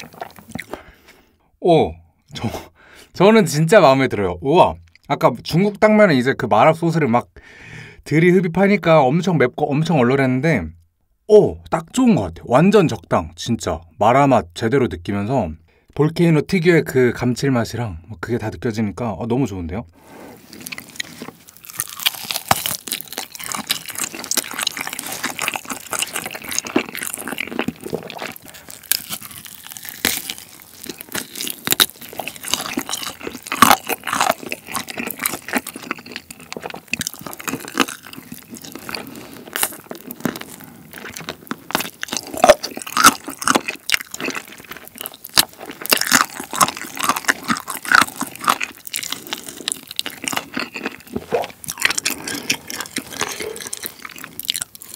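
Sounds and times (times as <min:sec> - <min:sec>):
crunching and chewing food: 0:00.0 - 0:01.3, 0:20.0 - 0:54.9.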